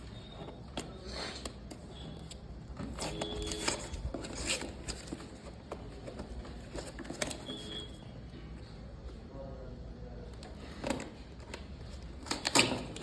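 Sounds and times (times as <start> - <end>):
laptop packaging rustling and clicks: 0.0 - 8.0.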